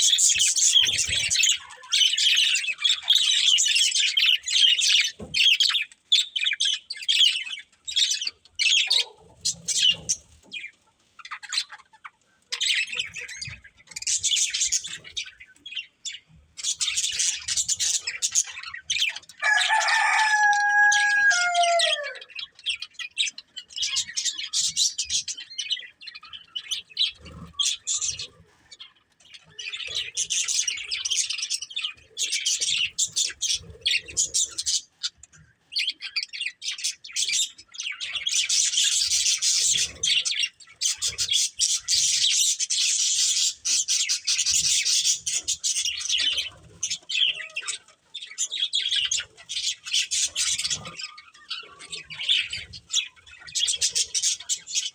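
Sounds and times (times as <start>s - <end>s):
budgerigars chattering and chirping: 0.0s - 54.9s.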